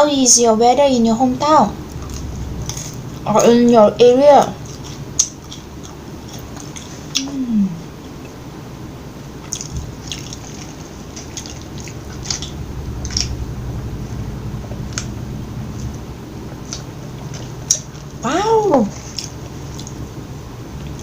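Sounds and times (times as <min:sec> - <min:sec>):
steady low hum: 0:00.0 - 0:21.0
close chewing: 0:04.4 - 0:08.4, 0:09.4 - 0:13.4, 0:18.9 - 0:20.1.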